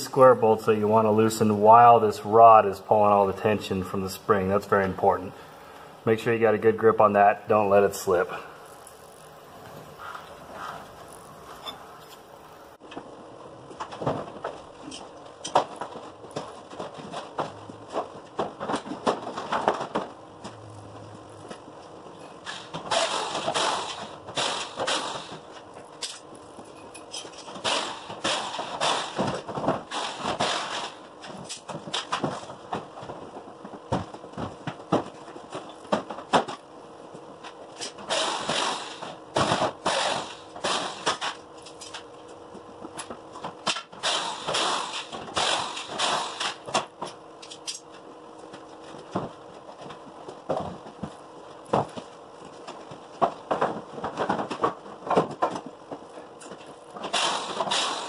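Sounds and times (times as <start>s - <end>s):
sharp metal knocks and clanks: 22.4s - 25.4s, 43.6s - 46.9s, 57.0s - 58.0s.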